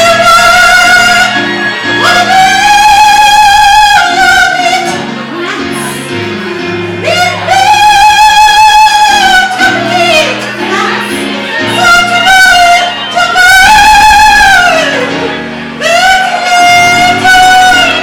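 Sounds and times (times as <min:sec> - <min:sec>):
man singing operatic falsetto: 0:00.0 - 0:04.9, 0:11.7 - 0:15.1, 0:15.8 - 0:18.0
instrumental backing track: 0:00.0 - 0:18.0.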